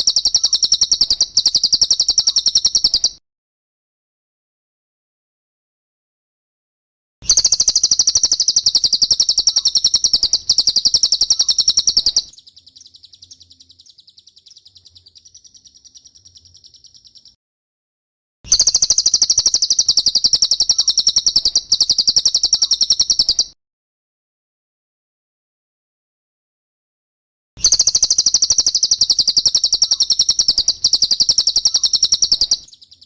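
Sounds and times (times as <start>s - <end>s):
bird trilling: 0.0s - 3.2s, 7.3s - 17.4s, 18.5s - 23.5s, 27.6s - 33.0s.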